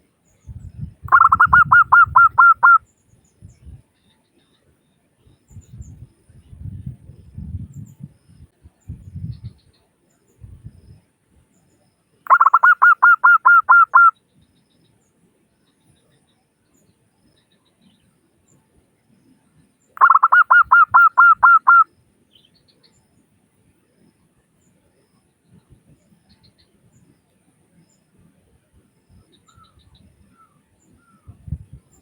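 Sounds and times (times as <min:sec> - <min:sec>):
dove cooing: 0:01.1 - 0:02.8, 0:12.3 - 0:14.1, 0:20.0 - 0:21.8.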